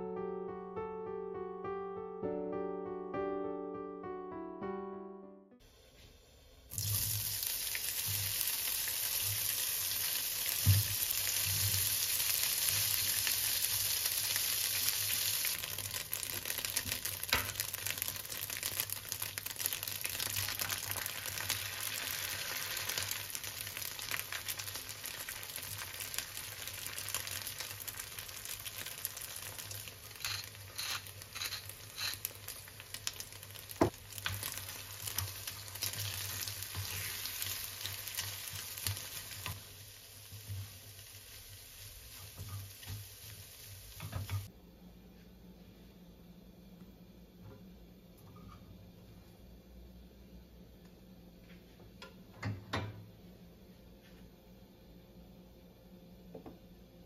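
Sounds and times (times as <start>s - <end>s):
sausage sizzling in a frying pan: 6.7s - 44.5s.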